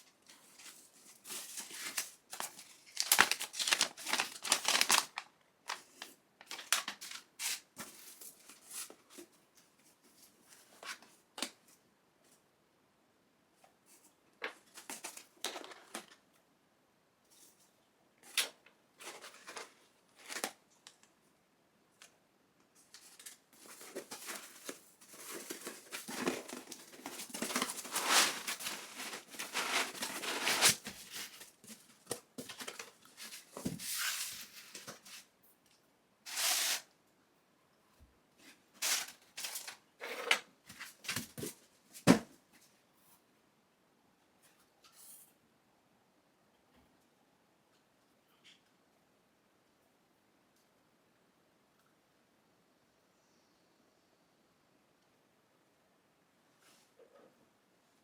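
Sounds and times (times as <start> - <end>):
packaging rustling and tearing: 0.6 - 8.5, 23.0 - 31.8.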